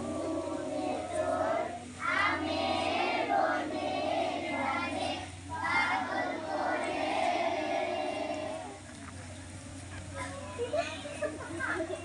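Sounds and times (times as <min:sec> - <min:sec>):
children singing in unison: 0:00.0 - 0:08.8.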